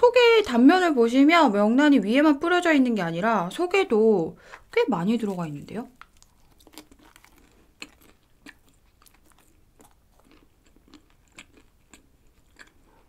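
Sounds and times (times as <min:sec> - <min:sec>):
chewing crunchy bread: 0:04.5 - 0:13.0.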